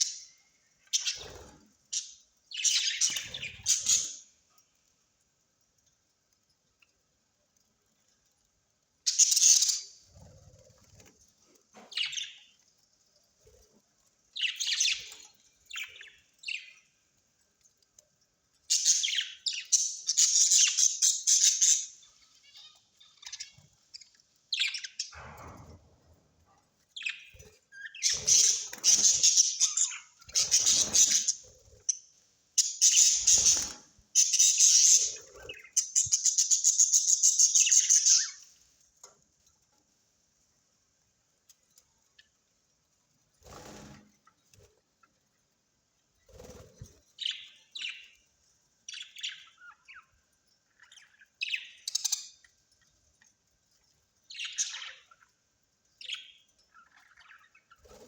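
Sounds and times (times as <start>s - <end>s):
parrots squawking: 27.1s - 31.9s
parrots rattling chatter: 27.1s - 32.0s, 32.6s - 38.5s.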